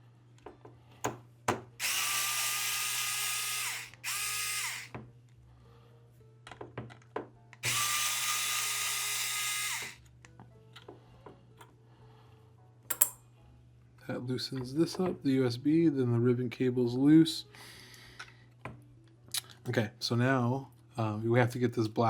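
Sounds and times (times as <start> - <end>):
electric screwdriver motor whine: 1.8 - 5.0, 7.6 - 10.0
tool and parts clicking: 12.9 - 13.2.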